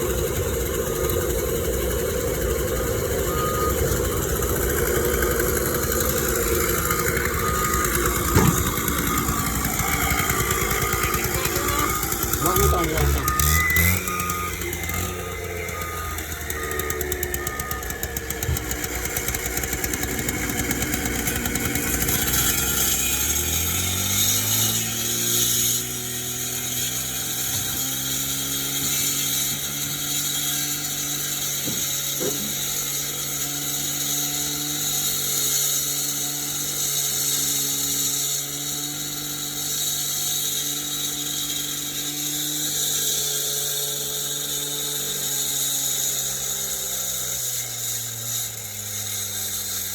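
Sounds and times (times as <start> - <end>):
heavy machine engine: 0.0 - 37.0.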